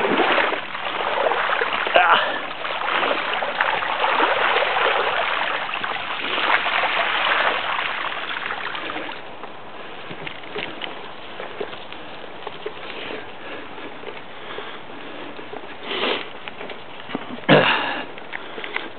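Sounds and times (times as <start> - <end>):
bike wheels splashing through water: 0.0 - 13.5.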